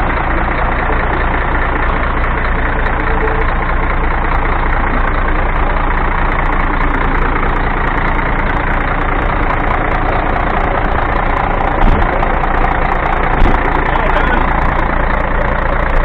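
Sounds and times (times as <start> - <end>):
diesel engine idling: 0.0 - 16.0
loud thump: 11.8 - 12.2, 13.4 - 13.7.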